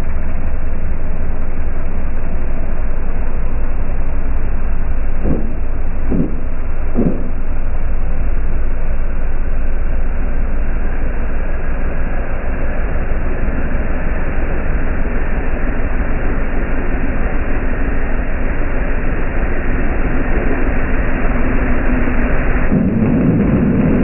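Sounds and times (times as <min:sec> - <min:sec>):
heavy diesel engine rumbling: 0:04.5 - 0:08.8, 0:10.8 - 0:24.0.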